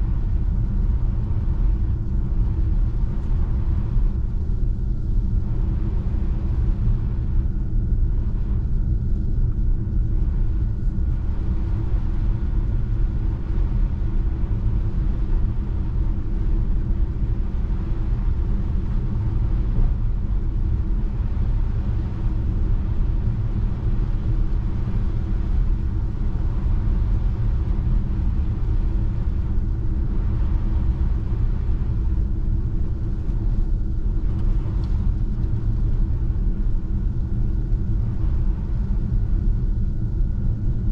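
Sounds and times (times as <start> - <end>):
car road rumble on snow: 0.0 - 39.8
faint steady hum: 0.0 - 40.9.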